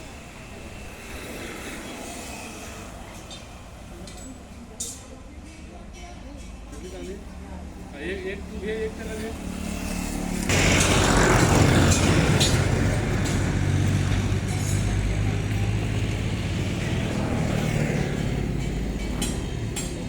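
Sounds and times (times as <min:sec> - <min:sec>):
tractor diesel engine running: 0:10.4 - 0:20.0.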